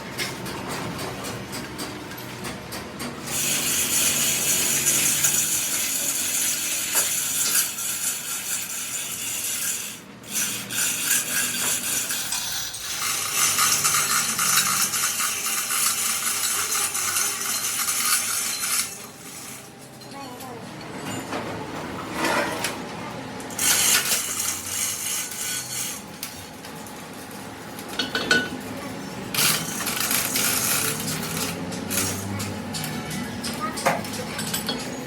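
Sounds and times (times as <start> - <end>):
power tool grinding steel: 3.3 - 19.8, 23.6 - 26.1, 29.4 - 32.5.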